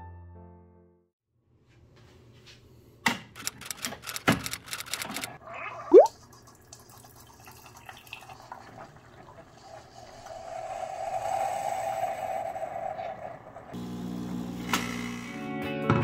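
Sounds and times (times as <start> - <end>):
coffee streaming into a pitcher: 6.2 - 11.3
coffee maker rising whine: 9.6 - 15.4.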